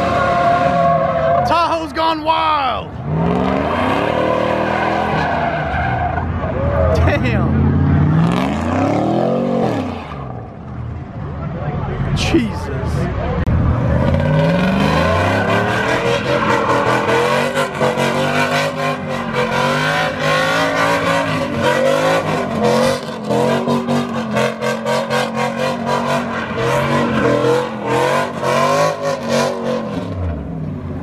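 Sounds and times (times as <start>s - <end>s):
vehicle engine revving hard: 3.0s - 5.5s, 7.1s - 10.4s, 13.6s - 30.5s.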